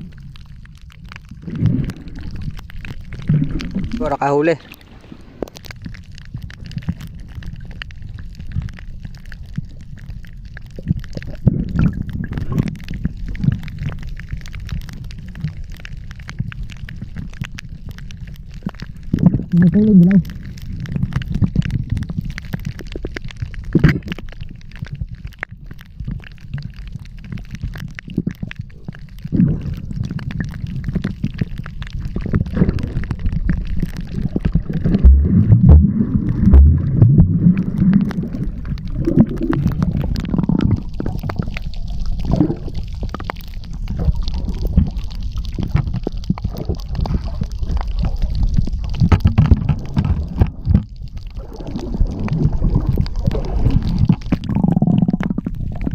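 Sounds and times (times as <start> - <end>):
underwater gurgling water: 0.0 - 55.9
thumps: 34.4 - 38.1.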